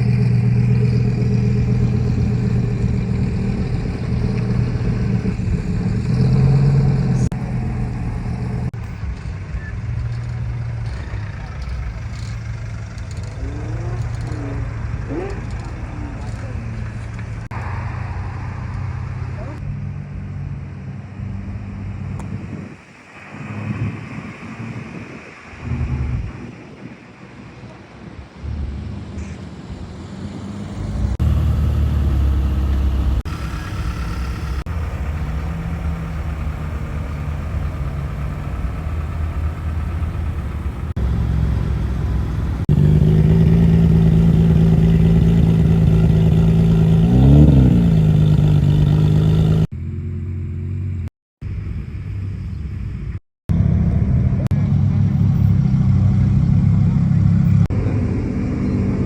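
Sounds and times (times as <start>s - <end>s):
sports car engines at low revs: 0.0s - 59.0s
engine throttle blip: 31.1s - 48.5s.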